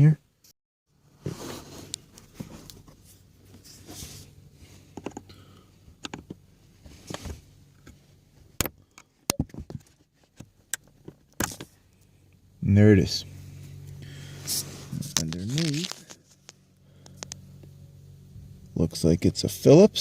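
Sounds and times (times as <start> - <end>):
clicks and knocks under dashboard: 8.6 - 11.8.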